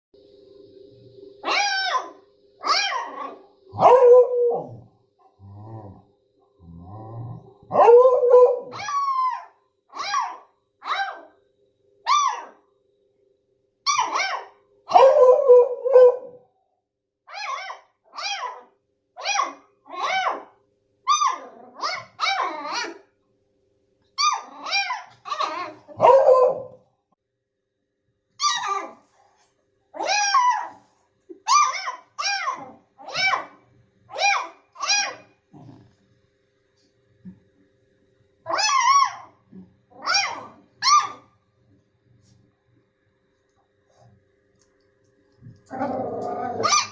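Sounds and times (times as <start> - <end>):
dog barking: 1.4 - 4.8, 7.7 - 11.3, 12.1 - 12.6, 13.9 - 16.4, 17.4 - 20.5, 24.2 - 26.8, 31.5 - 35.3, 40.0 - 41.3, 46.6 - 46.9.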